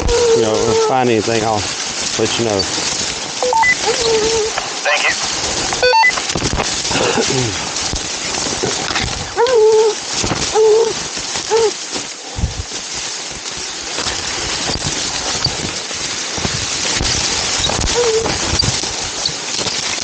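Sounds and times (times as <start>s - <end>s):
steady rustling hiss: 0.0s - 20.0s.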